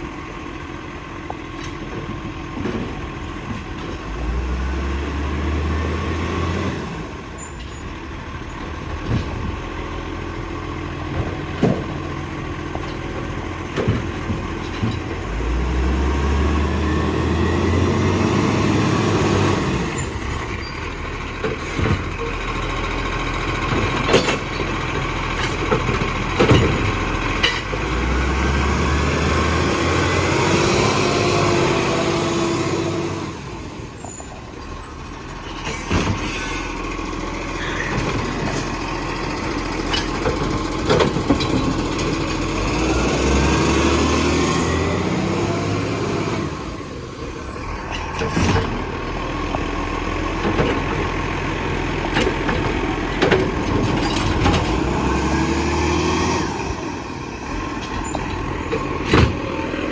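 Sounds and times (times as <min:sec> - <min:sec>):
garbage truck diesel engine: 0:00.0 - 0:59.9
knocks and clunks: 0:08.9 - 0:09.7, 0:11.0 - 0:15.2, 0:23.6 - 0:27.9, 0:39.6 - 0:42.5, 0:49.5 - 0:51.3, 0:52.0 - 0:55.1, 0:57.8 - 0:59.9
hydraulic whines: 0:33.6 - 0:36.9, 0:44.5 - 0:49.0, 0:56.4 - 0:59.9.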